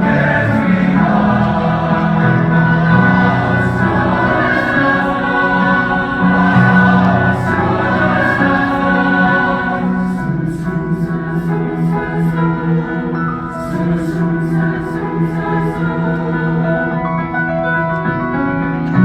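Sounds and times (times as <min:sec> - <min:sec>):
choir repeated short notes: 0:00.0 - 0:10.6
choir singing sustained chords: 0:00.0 - 0:17.7.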